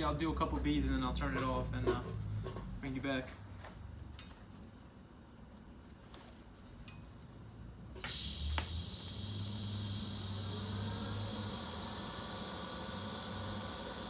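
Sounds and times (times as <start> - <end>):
welding arc hiss and hum: 7.9 - 14.0
welding arc striking click: 8.0 - 9.4.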